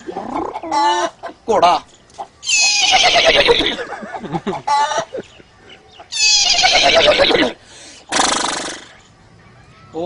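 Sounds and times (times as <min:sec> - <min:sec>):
man imitating horse neigh: 0:02.5 - 0:03.8, 0:06.1 - 0:08.9.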